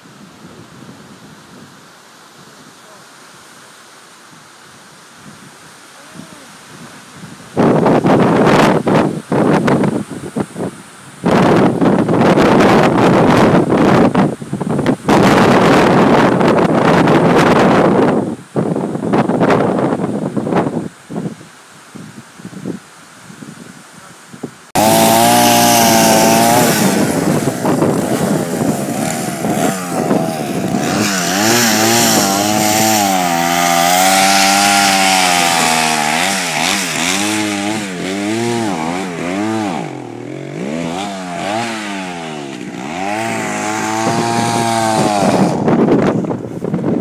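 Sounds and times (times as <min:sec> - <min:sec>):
chainsaw cutting wood: 0:24.8 - 0:46.2.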